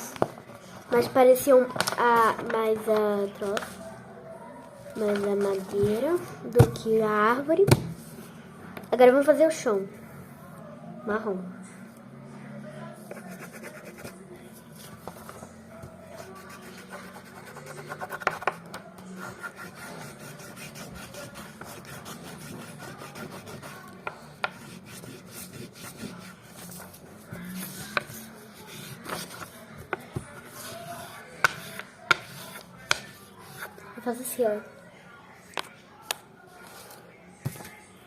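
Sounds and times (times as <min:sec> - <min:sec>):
pencil scribbling on paper: 0:13.1 - 0:14.1, 0:16.2 - 0:18.6, 0:19.2 - 0:32.6.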